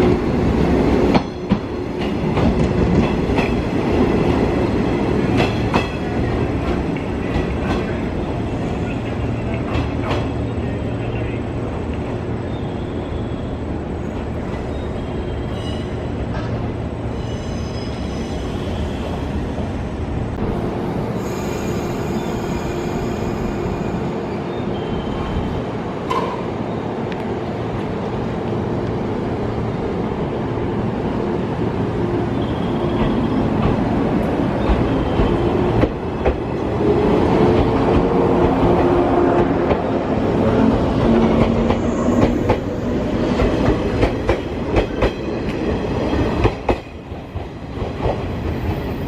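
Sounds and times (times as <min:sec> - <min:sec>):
rail clicks: 0:00.0 - 0:08.1, 0:25.0 - 0:27.4, 0:32.5 - 0:49.0
rising train whine: 0:00.0 - 0:49.0
train rumble and hum: 0:00.0 - 0:49.0.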